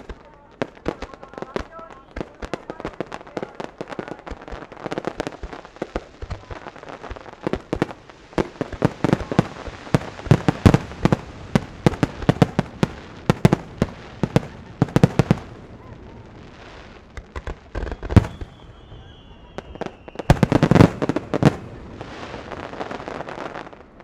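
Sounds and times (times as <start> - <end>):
fireworks bursting with sharp bangs: 0.0 - 24.0.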